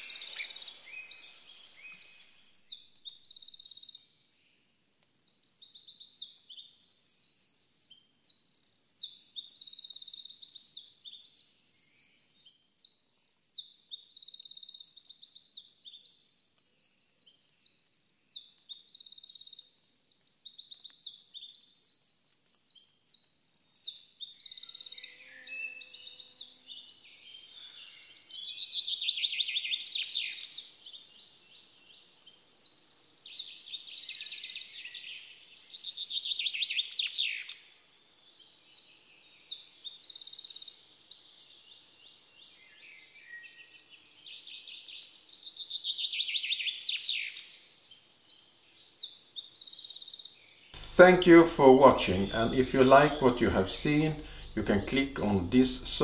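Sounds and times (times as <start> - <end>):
bird song sweeping downward: 0.0 - 4.0, 24.3 - 56.0
songbirds trilling and chirping: 0.0 - 56.0.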